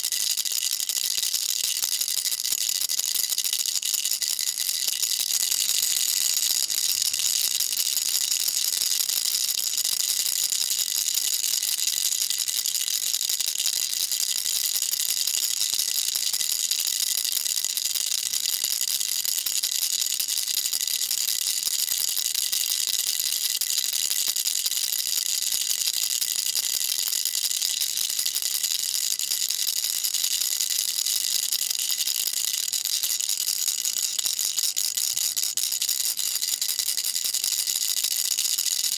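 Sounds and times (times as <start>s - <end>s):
baby rattle shaken: 0.7s - 16.3s.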